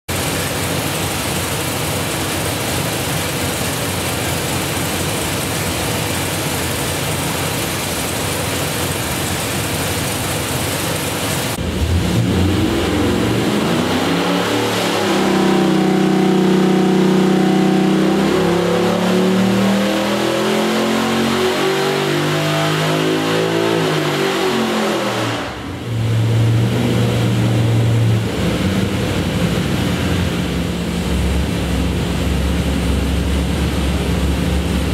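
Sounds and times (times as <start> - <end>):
engine idling: 0.1 - 13.5, 25.8 - 34.9
engine roaring and revving: 0.1 - 34.9.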